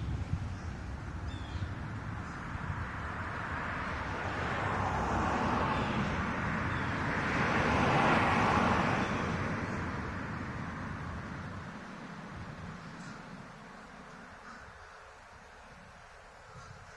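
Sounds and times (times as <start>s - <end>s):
car driving past: 1.3s - 14.8s.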